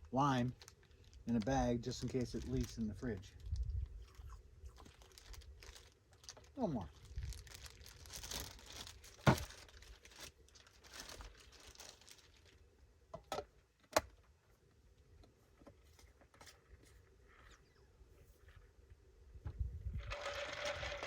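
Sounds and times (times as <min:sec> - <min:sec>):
plastic bag crinkling: 0:00.2 - 0:12.7, 0:20.0 - 0:21.0.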